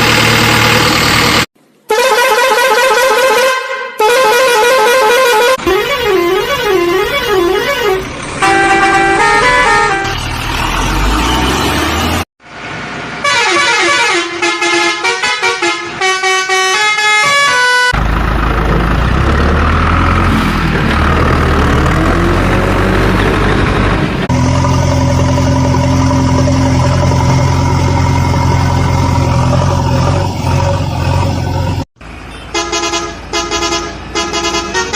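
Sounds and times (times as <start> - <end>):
vehicle engine noise: 0.0 - 1.7, 5.6 - 13.3, 17.9 - 34.9
long steady horn tone: 1.9 - 10.2, 13.2 - 18.0, 32.3 - 34.9
short horn toots: 1.9 - 10.3.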